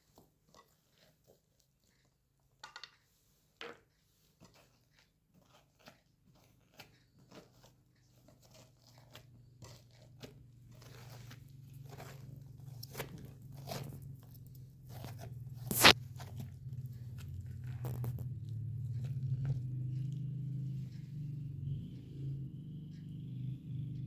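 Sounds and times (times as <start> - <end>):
crunching and clicking: 6.5 - 20.2
low hum: 15.4 - 24.0.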